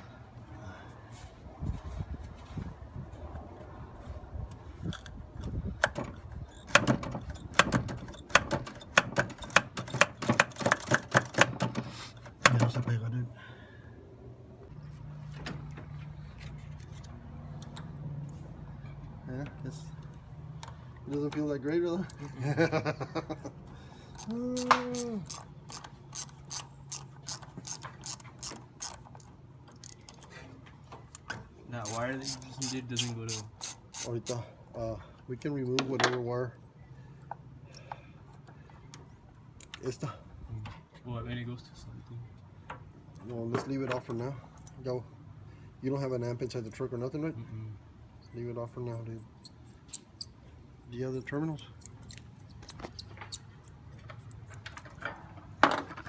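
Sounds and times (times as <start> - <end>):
ratchet wrench clicking: 24.1 - 30.2, 31.8 - 34.4.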